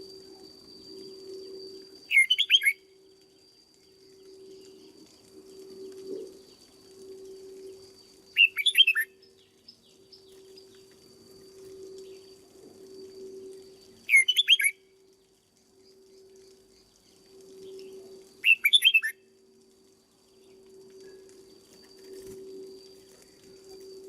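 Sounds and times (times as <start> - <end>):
low hum: 0.0 - 24.0
bird warbling song: 2.0 - 6.7, 8.0 - 11.0, 13.1 - 14.9, 15.8 - 19.3.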